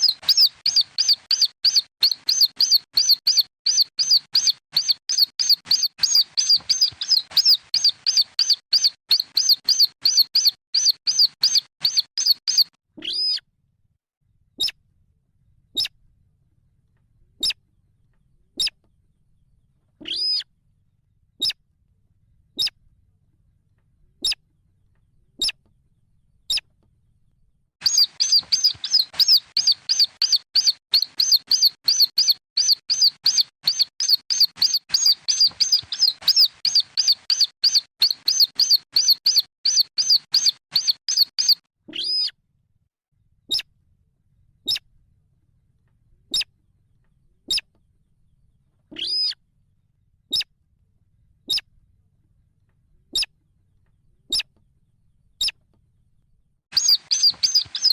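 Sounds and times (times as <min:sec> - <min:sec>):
young rail bird calls: 0:00.0 - 0:13.4, 0:20.0 - 0:20.4, 0:27.8 - 0:42.3, 0:48.9 - 0:49.4, 0:56.7 - 0:57.9.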